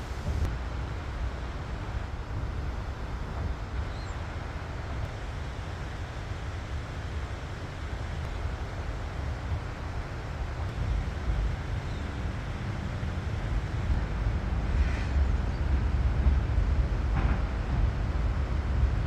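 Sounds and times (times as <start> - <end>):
wind buffeting microphone: 0.0 - 0.5.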